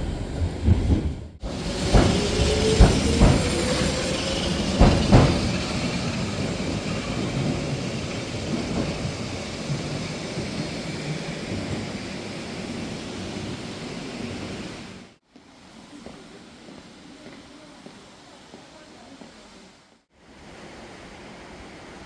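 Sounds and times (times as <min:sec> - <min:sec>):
train rumbling on rails: 0:00.0 - 0:19.5
sharp knocks: 0:04.7 - 0:05.6.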